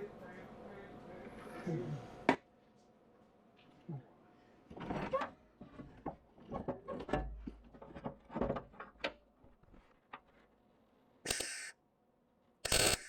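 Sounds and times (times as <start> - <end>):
welding hiss and crackle: 11.3 - 11.7, 12.6 - 13.0.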